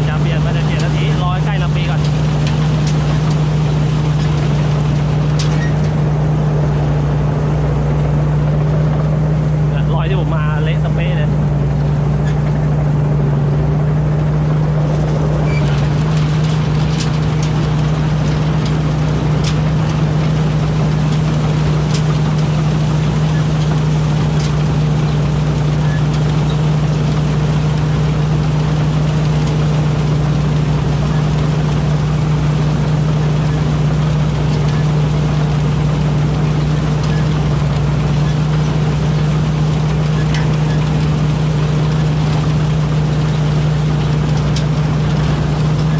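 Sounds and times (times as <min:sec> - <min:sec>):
combine harvester engine drone: 0:00.0 - 0:45.9.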